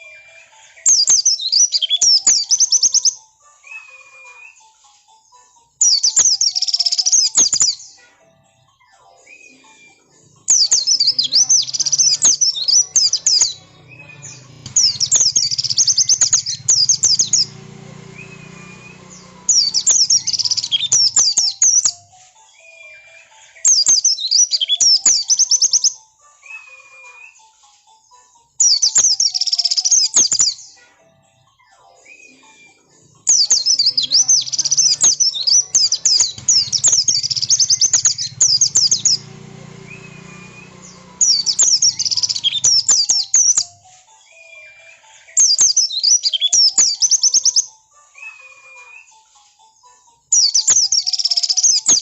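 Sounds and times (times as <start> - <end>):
bird high twittering: 0.8 - 3.2, 10.4 - 22.0, 23.7 - 25.9, 33.3 - 43.7, 44.4 - 48.4, 50.4 - 52.0.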